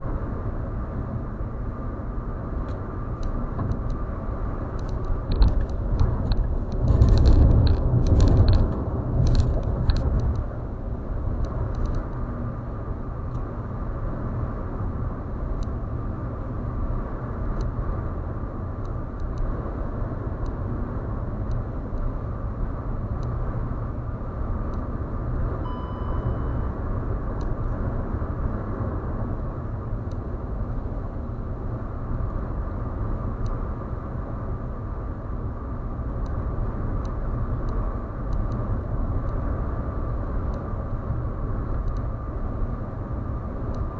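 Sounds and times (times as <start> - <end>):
vehicle road noise at highway speed: 0.0 - 43.9
short faint beep: 25.6 - 26.8.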